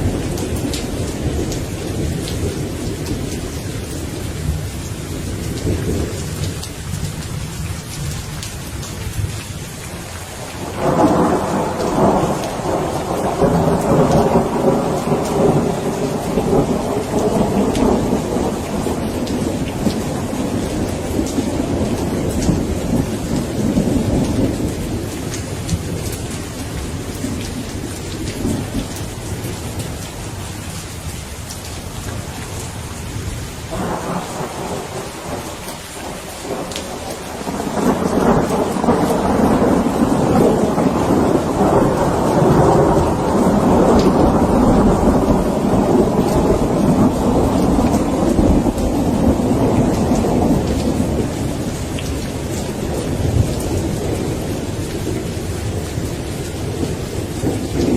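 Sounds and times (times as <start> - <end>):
steady rain falling: 0.0 - 57.9
thunder rolling: 10.7 - 30.0, 33.7 - 57.9.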